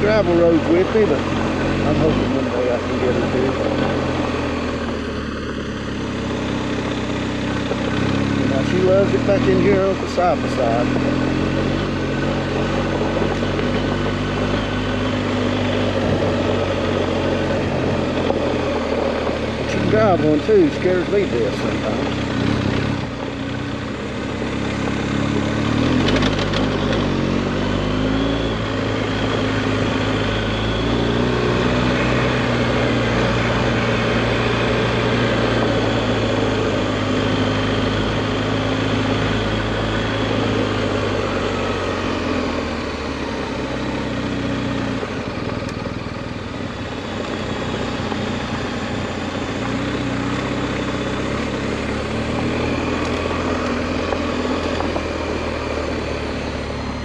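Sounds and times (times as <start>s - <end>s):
motorcycle engine running: 0.0s - 57.0s
road noise: 0.0s - 57.0s.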